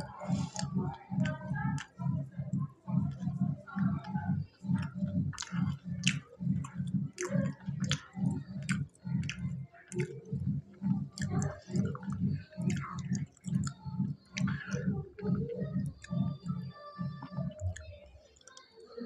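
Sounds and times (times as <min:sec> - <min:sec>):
man chewing crunchy food: 0:04.8 - 0:10.1.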